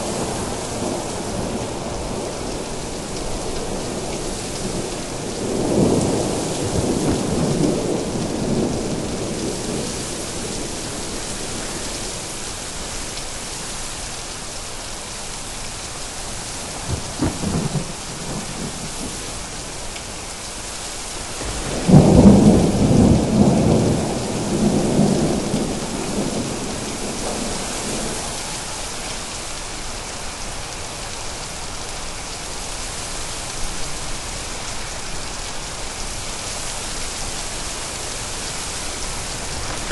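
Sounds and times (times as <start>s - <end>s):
rain hissing: 0.0s - 39.9s
thunder rumbling: 3.2s - 11.8s, 16.8s - 19.5s, 21.4s - 28.8s, 38.7s - 39.9s.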